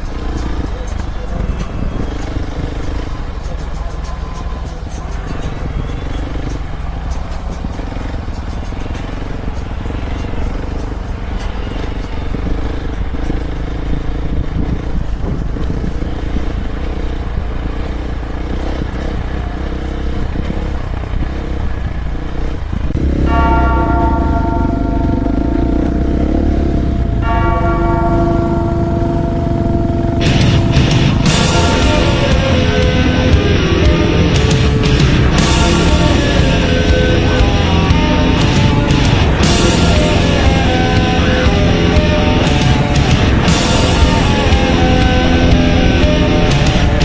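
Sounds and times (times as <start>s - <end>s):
bell-like ringing tones: 0.0s - 14.1s, 23.2s - 47.0s
dirt bike engine running: 0.0s - 47.0s
wind noise: 11.2s - 17.6s.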